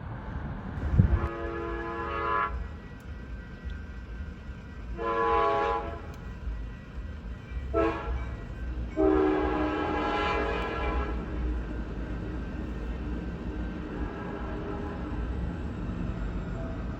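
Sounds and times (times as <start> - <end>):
locomotive air horn blasts: 0.8 - 2.9, 4.8 - 7.0, 7.6 - 11.6.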